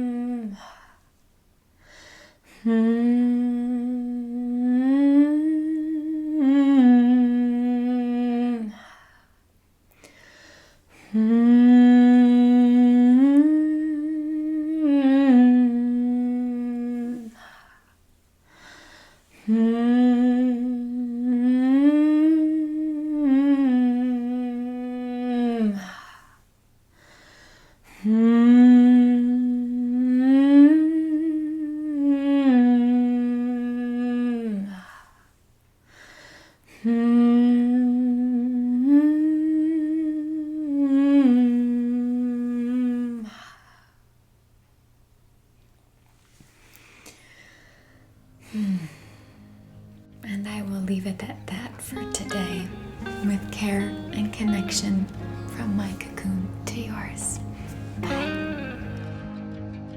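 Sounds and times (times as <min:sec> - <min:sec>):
woman humming a slow melody: 0:00.0 - 0:00.8, 0:02.5 - 0:08.9, 0:11.0 - 0:17.5, 0:19.4 - 0:26.1, 0:27.9 - 0:34.9, 0:36.7 - 0:43.4, 0:48.4 - 0:59.5.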